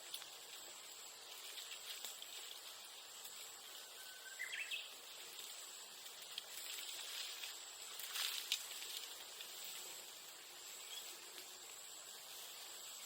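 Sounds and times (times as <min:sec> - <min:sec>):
bonfire crackling: 0:00.0 - 0:13.0
insect buzz: 0:00.0 - 0:13.0
bird whistling call: 0:04.0 - 0:04.9.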